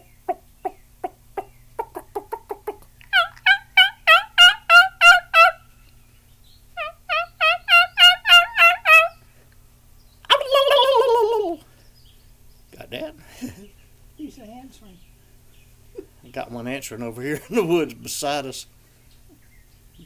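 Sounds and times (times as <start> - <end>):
person imitating turkey clucks: 0.0 - 5.6, 6.8 - 9.1, 10.3 - 11.6
person imitating turkey yelps: 0.6 - 5.6, 6.8 - 9.1, 10.3 - 11.6.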